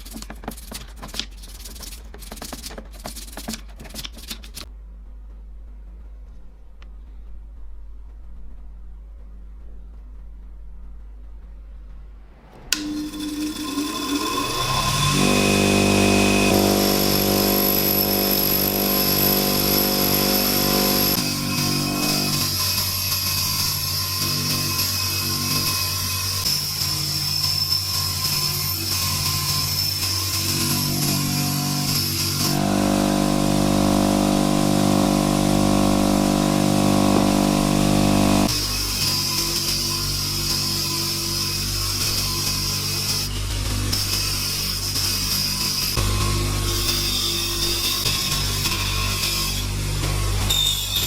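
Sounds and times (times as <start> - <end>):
power tool motor whining: 12.8 - 26.2, 29.1 - 38.7.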